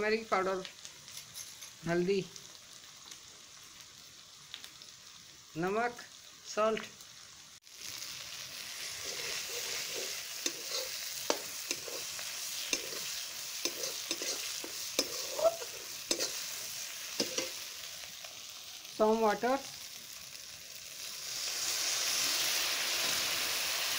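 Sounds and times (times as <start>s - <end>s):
onions sizzling in hot oil: 0.0s - 23.9s
spoon scraping and knocking pan: 8.9s - 17.6s.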